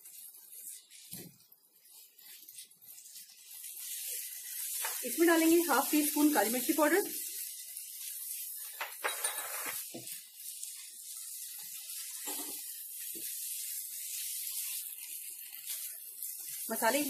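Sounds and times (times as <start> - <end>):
spatula scraping a pan: 0.0 - 17.0
stir-fry sizzling in a pan: 0.0 - 17.0.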